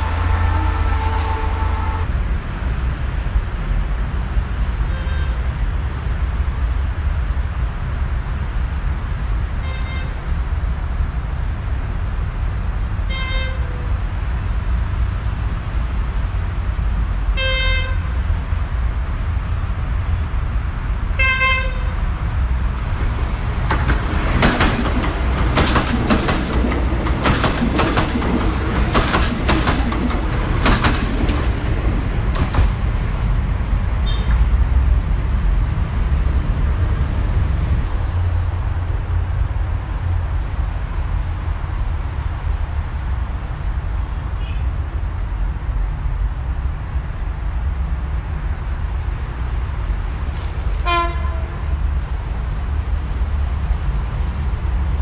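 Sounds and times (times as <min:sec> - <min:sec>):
train horn blasts: 0:00.0 - 0:02.1, 0:04.9 - 0:05.4, 0:09.6 - 0:10.2, 0:13.1 - 0:13.9, 0:17.4 - 0:18.2, 0:21.2 - 0:22.0, 0:50.8 - 0:51.8
low train rumble: 0:00.0 - 0:55.0
wheels clacking over rail joints: 0:22.8 - 0:34.8.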